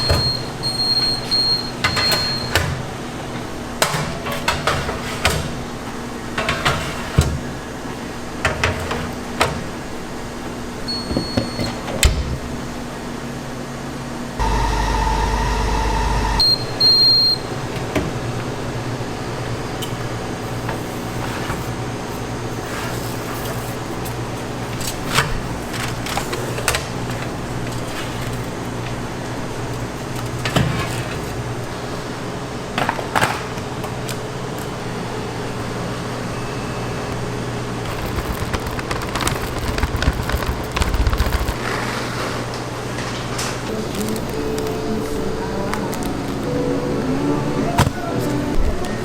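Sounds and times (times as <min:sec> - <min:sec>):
kitchen appliance humming: 0:14.4 - 0:18.7
low background hum: 0:42.8 - 0:49.0.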